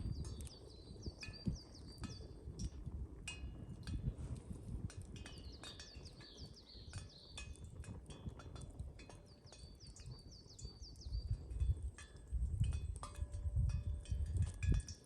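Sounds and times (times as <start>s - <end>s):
campfire crackling: 0.0s - 15.0s
bird chirping: 5.3s - 7.5s.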